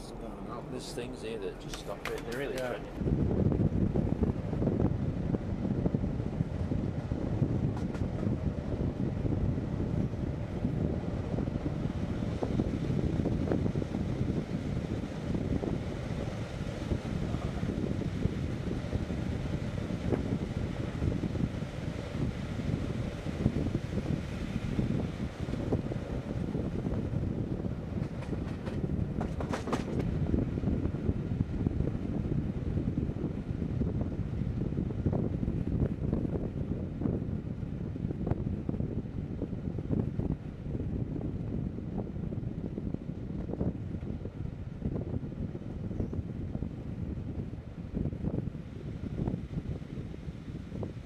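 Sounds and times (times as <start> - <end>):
train wheels rumbling: 0.0 - 32.7.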